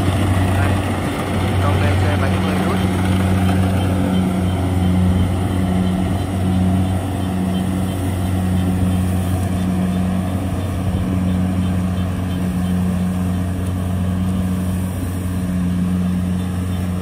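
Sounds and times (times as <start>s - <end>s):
combine harvester diesel engine: 0.0s - 17.0s.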